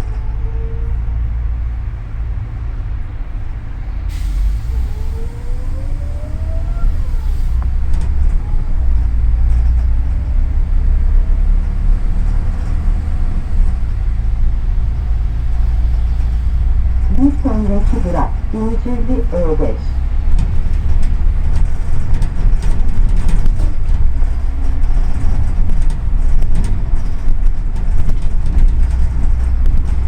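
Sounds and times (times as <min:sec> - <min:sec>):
bus engine and road rumble: 0:00.0 - 0:30.0
air brake hiss: 0:04.1 - 0:05.3.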